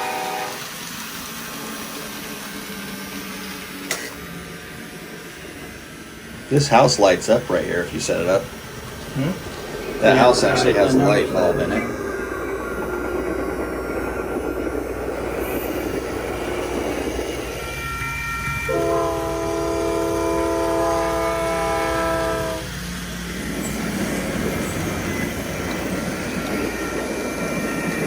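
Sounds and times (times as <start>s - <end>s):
multi-note train horn: 0.0s - 0.9s, 9.3s - 12.0s, 17.7s - 22.9s
model trains running: 0.0s - 28.0s.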